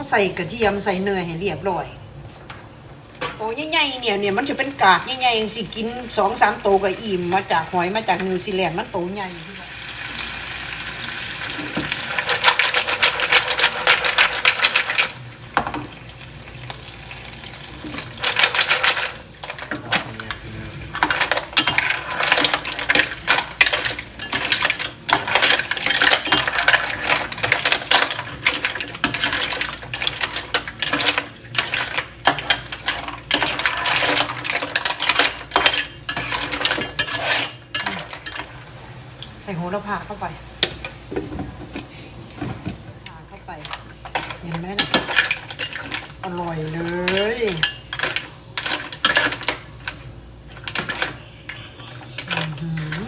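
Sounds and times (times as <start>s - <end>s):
mussel shells clattering in pan: 10.2s - 15.9s, 16.6s - 38.7s, 40.0s - 53.0s.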